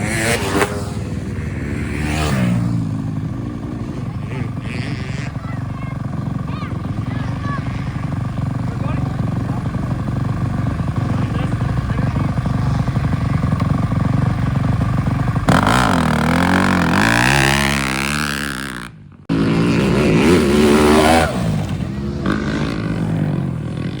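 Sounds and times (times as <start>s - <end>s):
dirt bike engines revving: 0.0s - 24.0s.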